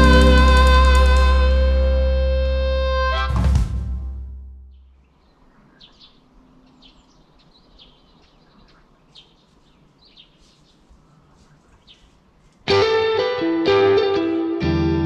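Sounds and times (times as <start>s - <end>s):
faint high bird chirps: 4.7s - 12.2s
soft background noise: 5.0s - 12.7s.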